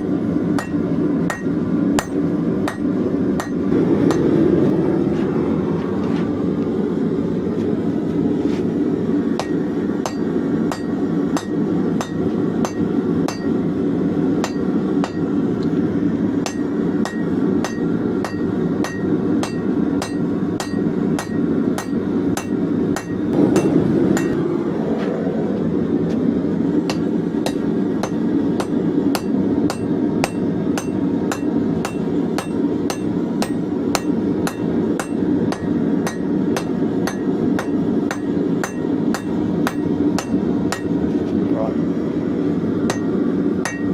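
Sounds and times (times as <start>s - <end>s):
constant low rumble: 0.0s - 43.9s
hammer blows on anvil: 0.6s - 4.4s, 9.4s - 13.6s, 16.4s - 24.4s, 26.9s - 41.0s, 42.9s - 43.9s.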